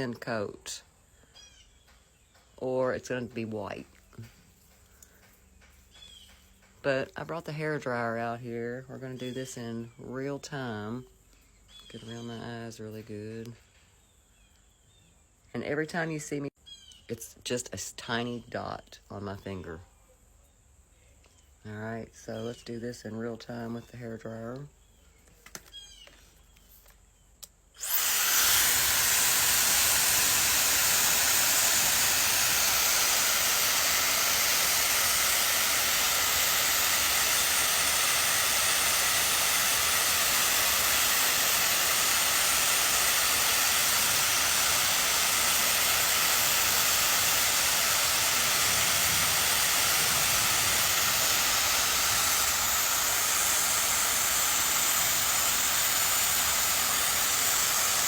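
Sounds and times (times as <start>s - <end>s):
hair dryer running: 27.8s - 58.0s.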